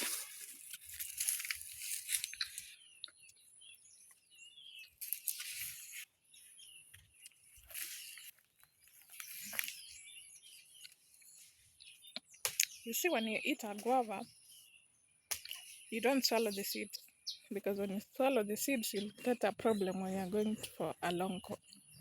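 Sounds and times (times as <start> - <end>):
person chewing crunchy fruit: 0.0 - 3.3
small birds chirping: 0.0 - 22.0.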